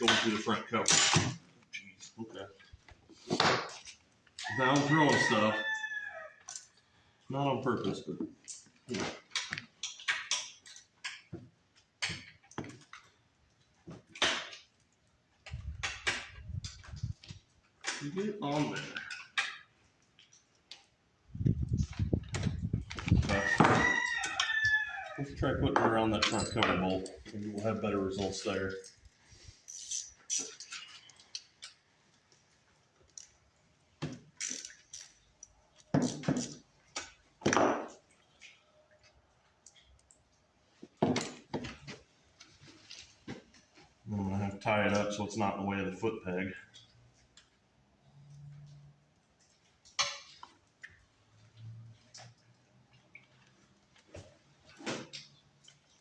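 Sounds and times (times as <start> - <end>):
small parts clicking and rustling: 6.4 - 6.9, 7.8 - 21.0, 26.0 - 44.0.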